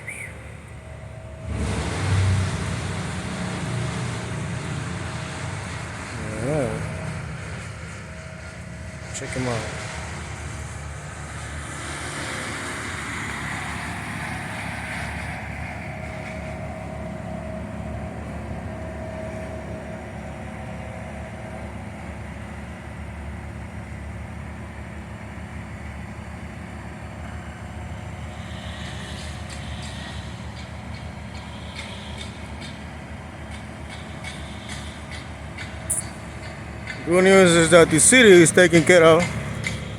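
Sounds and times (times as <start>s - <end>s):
engine humming: 0.0s - 39.9s
hiss: 28.3s - 30.6s.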